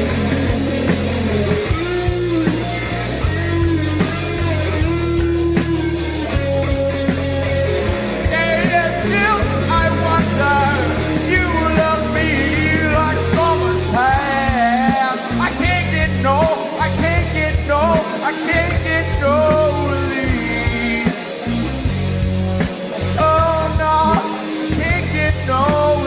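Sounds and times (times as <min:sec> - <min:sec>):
bending guitar lead line: 0:00.0 - 0:26.0
rock band playing: 0:00.0 - 0:26.0.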